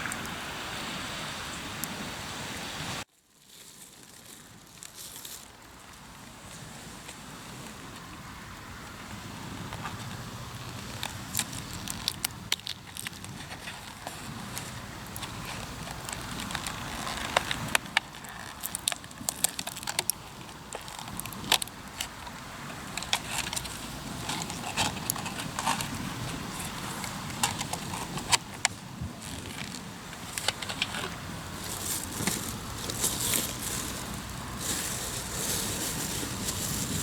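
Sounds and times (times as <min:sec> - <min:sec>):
campfire crackling and popping: 0:09.8 - 0:35.4.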